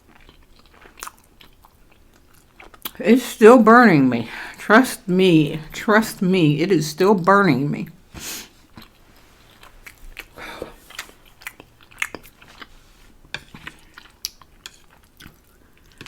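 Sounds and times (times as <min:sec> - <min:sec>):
person chewing noodles: 0:00.0 - 0:03.0, 0:08.6 - 0:16.0.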